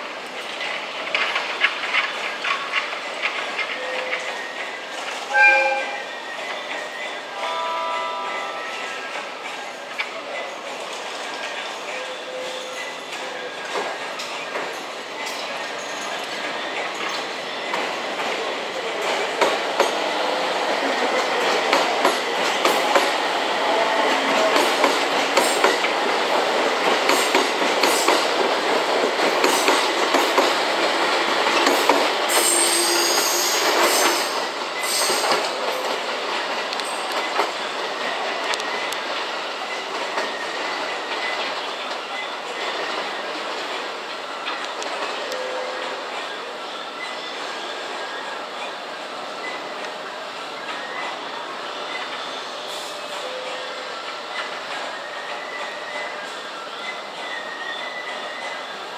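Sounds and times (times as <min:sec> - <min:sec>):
train wheels clattering: 0:00.2 - 0:05.8, 0:12.5 - 0:46.4
high-pitched wheel squeal: 0:05.3 - 0:08.7.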